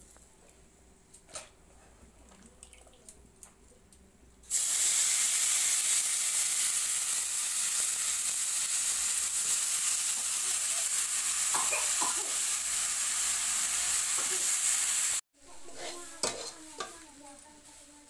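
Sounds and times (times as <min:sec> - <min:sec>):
loud sizzling in oil: 0:04.5 - 0:18.0.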